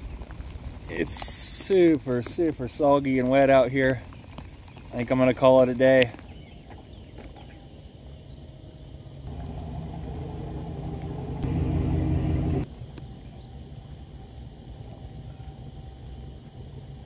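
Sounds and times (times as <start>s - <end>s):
low engine-like hum: 7.7s - 17.0s.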